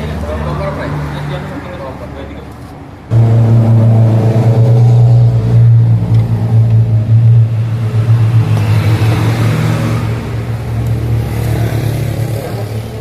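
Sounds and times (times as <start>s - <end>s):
loud motor humming: 3.1s - 12.9s.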